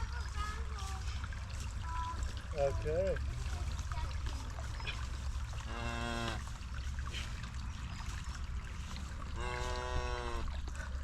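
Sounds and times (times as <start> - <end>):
cattle mooing: 5.6 - 6.4, 9.4 - 10.5.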